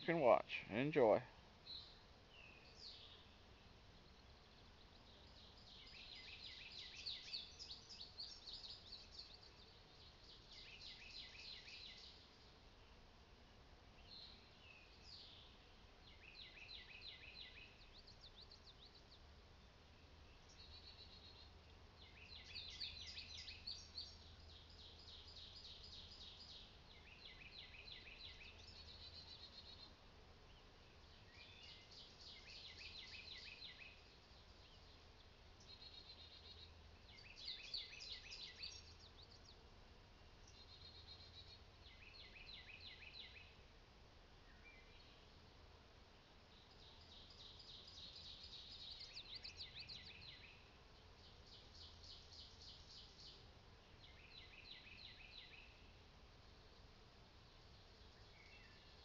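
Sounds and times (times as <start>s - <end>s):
songbird trilling and chirping: 4.0s - 12.4s, 14.0s - 19.3s, 20.3s - 39.6s, 40.4s - 43.6s, 46.6s - 55.9s.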